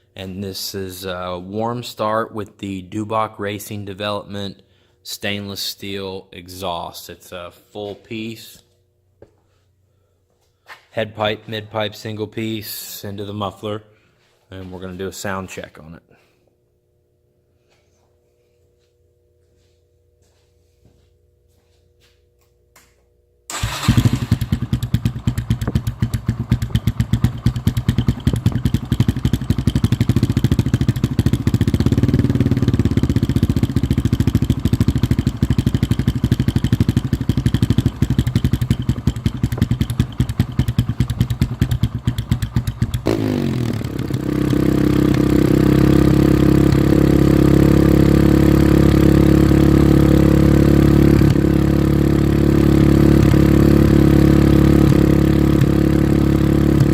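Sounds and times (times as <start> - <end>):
motorcycle engine idling and revving: 23.5 - 56.9.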